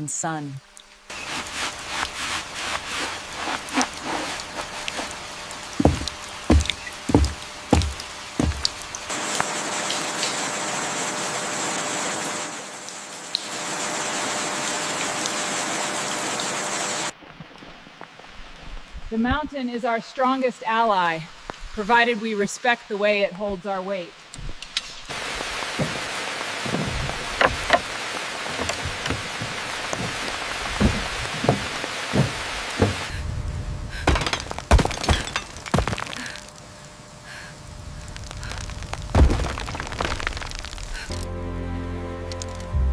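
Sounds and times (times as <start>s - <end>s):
steady hiss: 0.0s - 17.1s, 24.1s - 34.8s, 35.4s - 41.2s
falling water rushing: 1.1s - 17.1s, 25.1s - 33.1s, 37.4s - 41.2s
knocks and thuds: 5.8s - 8.8s, 25.7s - 33.1s, 34.1s - 36.1s, 39.1s - 39.8s
knock: 30.8s - 33.1s.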